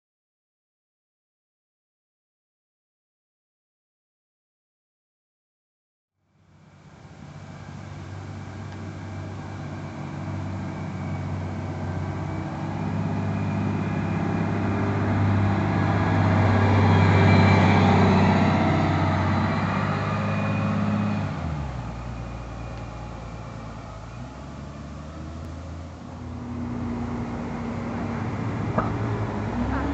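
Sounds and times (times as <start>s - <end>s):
bus diesel engine pulling uphill: 6.3s - 29.9s.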